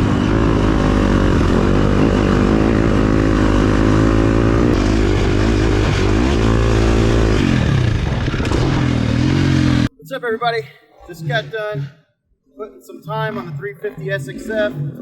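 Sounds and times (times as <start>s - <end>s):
motorcycle engine revving: 0.0s - 9.9s.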